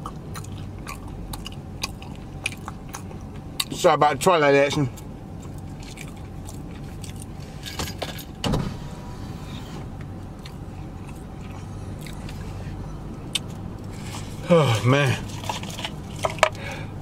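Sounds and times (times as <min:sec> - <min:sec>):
chewing burger: 0:00.0 - 0:03.9, 0:04.7 - 0:07.5, 0:10.2 - 0:16.8
low hum inside car: 0:00.0 - 0:17.0.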